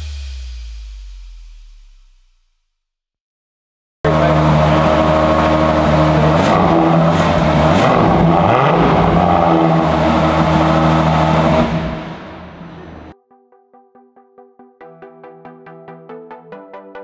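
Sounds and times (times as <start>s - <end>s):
car engine idling: 4.1s - 13.1s.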